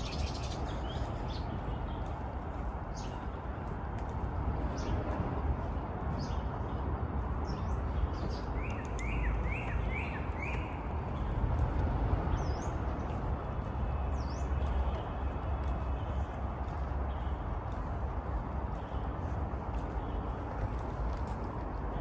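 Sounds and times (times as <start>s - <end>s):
small birds chirping: 0.0s - 2.2s.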